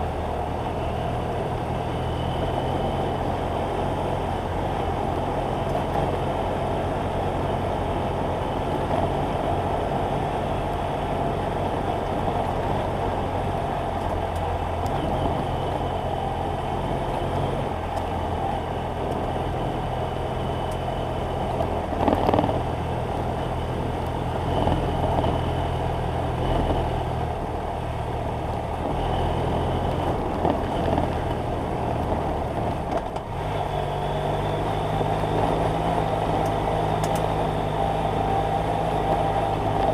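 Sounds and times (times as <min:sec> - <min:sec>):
motorcycle engine running: 0:00.0 - 0:39.9
wind noise on microphone: 0:21.6 - 0:23.0, 0:23.7 - 0:27.5, 0:28.2 - 0:39.9.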